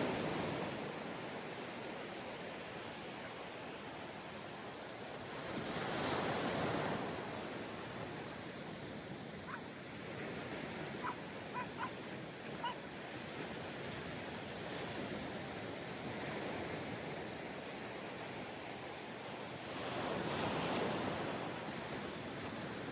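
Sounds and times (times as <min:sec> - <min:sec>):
surf washing onto a beach: 0:00.0 - 0:22.9
short high calls: 0:11.0 - 0:12.0.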